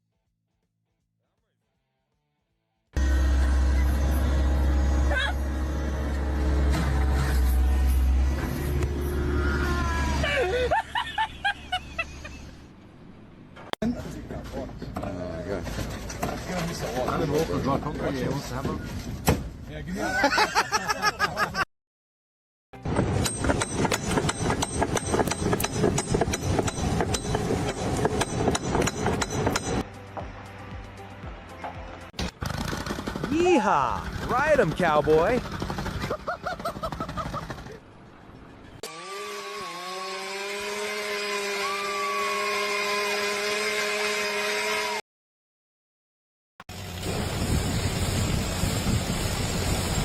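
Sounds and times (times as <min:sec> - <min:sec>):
power tool motor whining: 0:38.8 - 0:45.0.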